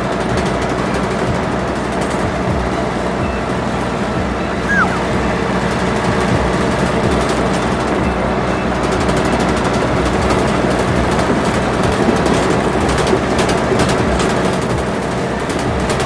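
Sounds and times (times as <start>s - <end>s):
cartoon vehicle engine running: 0.0s - 16.0s
short falling squeak: 4.6s - 5.2s.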